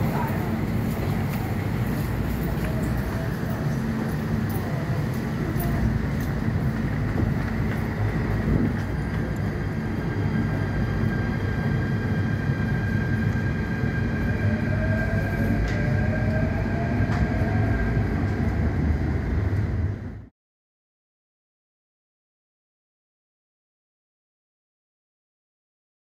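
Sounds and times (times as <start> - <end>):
train wheels rumbling on rails: 0.0 - 20.3.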